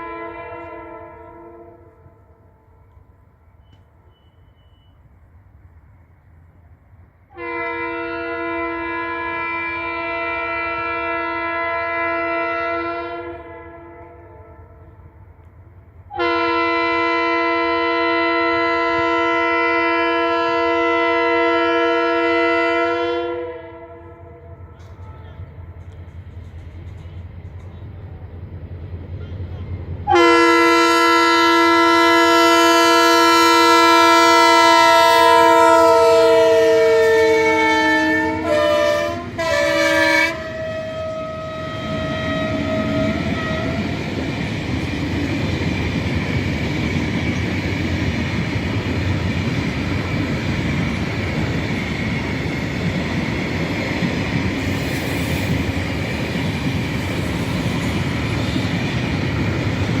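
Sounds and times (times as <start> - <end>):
locomotive air horn blasts: 0.0 - 2.3, 7.3 - 15.0, 16.1 - 25.4, 30.0 - 44.0
train rolling past: 0.0 - 60.0.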